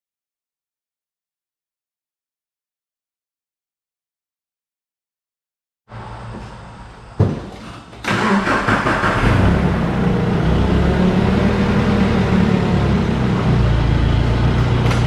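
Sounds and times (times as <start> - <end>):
vehicle engine starting and running: 8.0 - 15.0.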